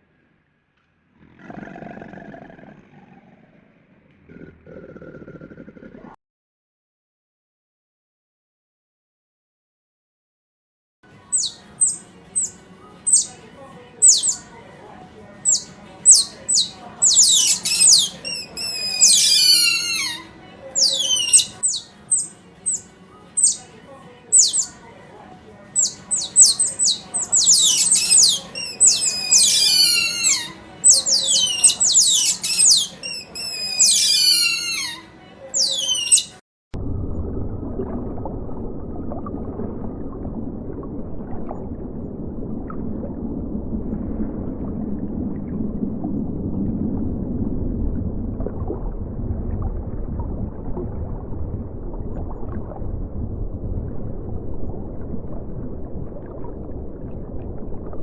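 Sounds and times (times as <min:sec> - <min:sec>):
bird chirping: 0:11.3 - 0:13.4, 0:14.0 - 0:14.4, 0:15.4 - 0:20.2, 0:20.8 - 0:23.6, 0:24.3 - 0:24.8, 0:25.8 - 0:35.0, 0:35.6 - 0:36.4.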